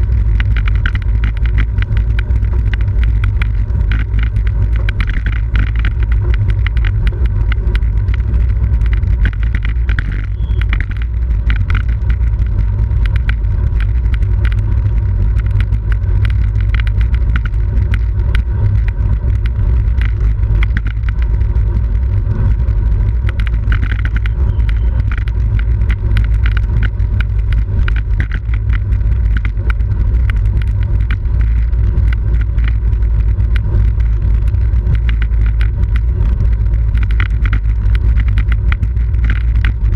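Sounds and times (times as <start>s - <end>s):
bicycle road rattle: 0.0s - 39.9s
small clicks from bicycle: 0.0s - 39.9s
wind rushing over microphone: 0.0s - 39.9s.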